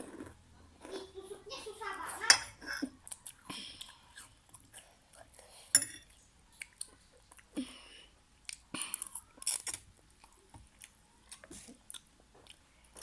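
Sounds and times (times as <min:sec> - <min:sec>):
person chewing and eating: 0:02.6 - 0:13.0.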